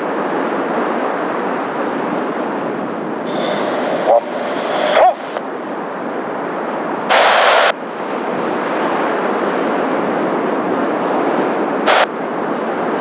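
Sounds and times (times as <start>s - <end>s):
wind on microphone: 0.0s - 13.0s
jet engines roaring: 2.6s - 10.1s, 11.0s - 12.2s
radio squelch hiss: 3.2s - 5.4s, 7.1s - 7.8s, 11.8s - 12.1s.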